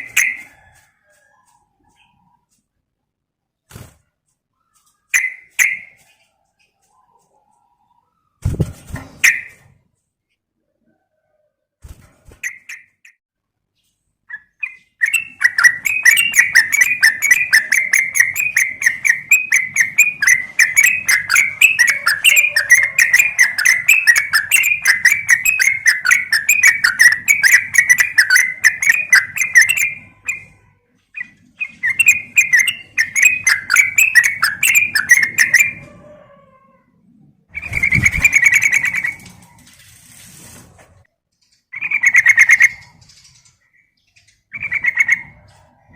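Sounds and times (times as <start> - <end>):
bird chattering call: 15.0 - 30.6, 31.6 - 35.8.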